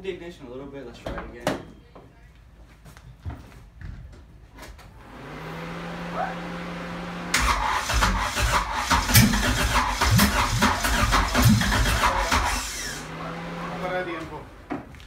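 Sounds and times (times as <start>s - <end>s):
engine cranking and sputtering: 7.2s - 14.8s.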